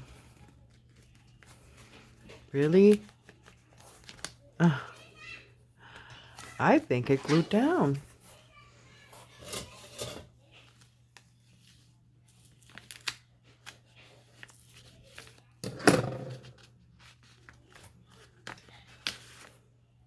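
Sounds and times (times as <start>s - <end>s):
paper rustling and crinkling: 0.0s - 5.3s, 10.3s - 15.6s, 16.3s - 20.0s.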